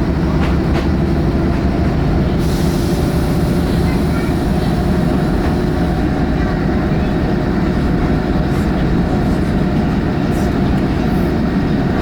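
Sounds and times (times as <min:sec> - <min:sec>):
rail bus engine and wheels rumbling: 0:00.0 - 0:12.0.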